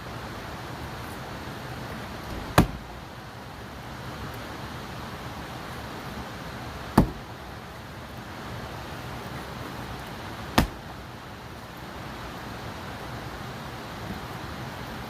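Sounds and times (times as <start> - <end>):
steady background hiss: 0.0 - 15.0
sharp wood splitting strikes: 2.3 - 2.9, 6.9 - 7.4, 10.5 - 11.0.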